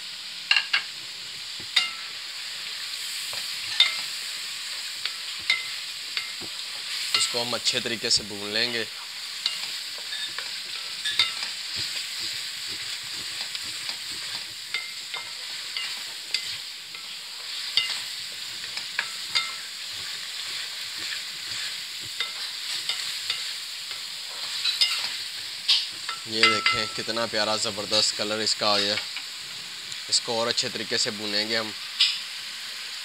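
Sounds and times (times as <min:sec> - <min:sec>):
beans sizzling in a pan: 0:00.0 - 0:33.0
wooden spatula scraping a pan: 0:09.0 - 0:29.0.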